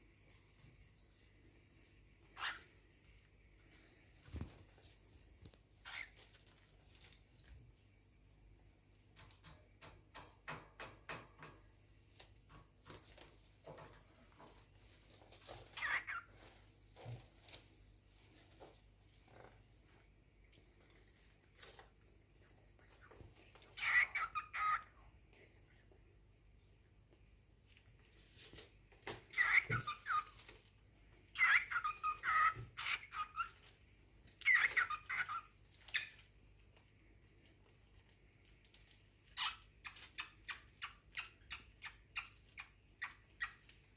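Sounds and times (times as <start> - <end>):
cockatiel chirp: 2.4 - 2.7, 5.8 - 6.3, 15.7 - 16.4, 23.8 - 24.9, 29.3 - 30.4, 31.3 - 33.6, 34.4 - 36.2.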